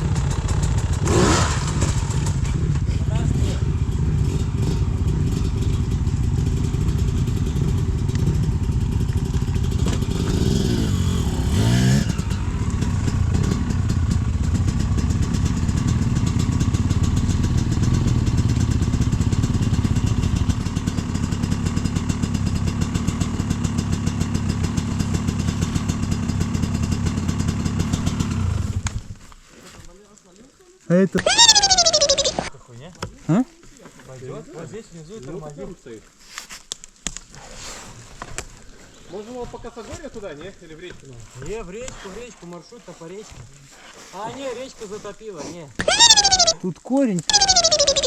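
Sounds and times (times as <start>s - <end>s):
dirt bike engine revving: 0.0s - 28.8s, 31.2s - 32.5s, 45.8s - 46.6s, 47.3s - 48.0s.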